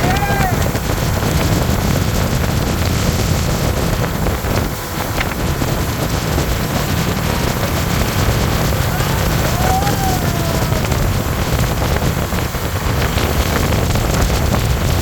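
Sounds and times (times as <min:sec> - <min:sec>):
rushing water: 0:00.0 - 0:15.0
speedboat motor roaring: 0:00.0 - 0:15.0
wind buffeting microphone: 0:00.0 - 0:15.0.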